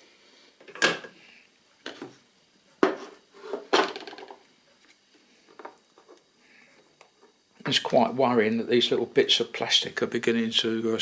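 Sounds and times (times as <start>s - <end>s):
plastic parts knocking and rattling: 3.5s - 4.4s.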